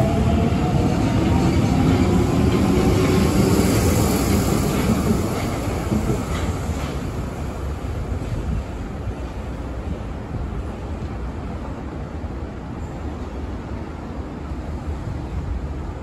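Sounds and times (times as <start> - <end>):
train wheels rolling: 0.0 - 9.5.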